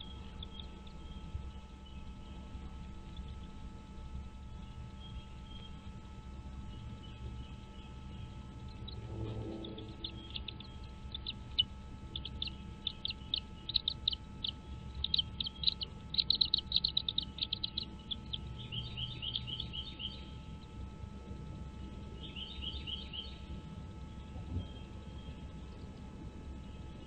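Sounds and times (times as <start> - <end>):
bird chirping: 0.0 - 2.5, 4.5 - 5.9, 6.6 - 20.8, 21.8 - 23.5
bird down-slurred notes: 8.7 - 20.3.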